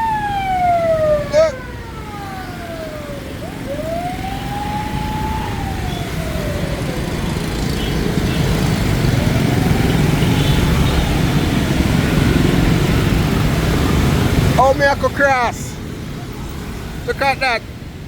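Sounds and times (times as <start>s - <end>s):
ambulance siren wailing: 0.0s - 12.8s
motorbike traffic rumble: 0.0s - 18.0s.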